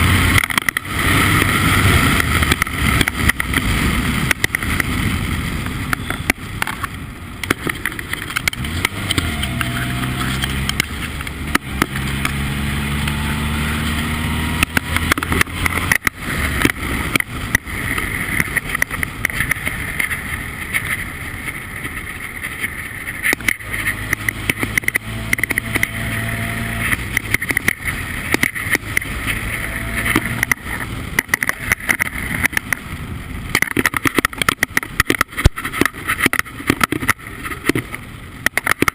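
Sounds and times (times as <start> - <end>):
race car engine revving: 7.5 - 20.4, 23.1 - 32.8.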